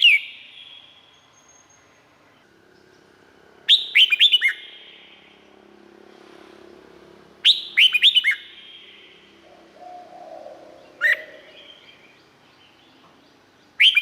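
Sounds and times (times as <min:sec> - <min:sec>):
bird whistling song: 0:00.0 - 0:02.0, 0:03.7 - 0:05.3, 0:07.4 - 0:13.0, 0:13.6 - 0:14.0.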